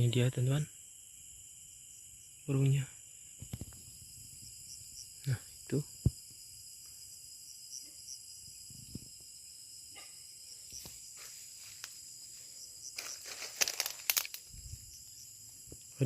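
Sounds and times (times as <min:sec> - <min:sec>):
crickets trilling: 0:00.0 - 0:16.0
rustling: 0:10.8 - 0:14.6.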